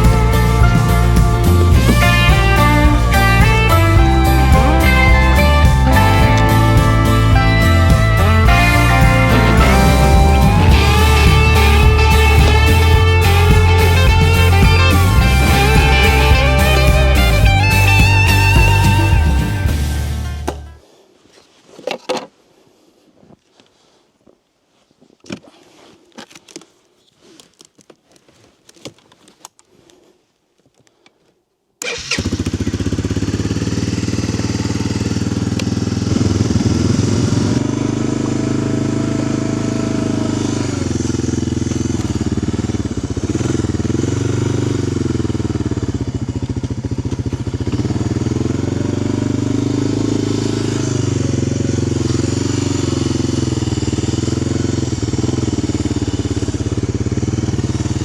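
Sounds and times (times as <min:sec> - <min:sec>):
atv engine starting and idling: 0:00.0 - 0:20.7, 0:31.8 - 0:58.0
faint handling sounds: 0:20.6 - 0:31.7.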